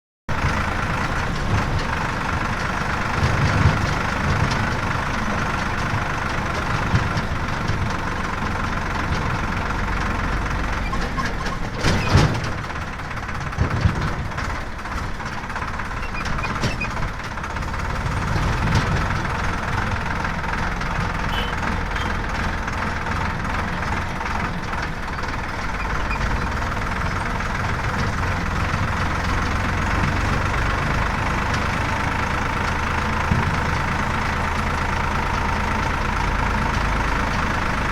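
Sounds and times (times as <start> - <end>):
heavy diesel engine running: 0.3 - 37.9
short clatter: 10.7 - 17.4.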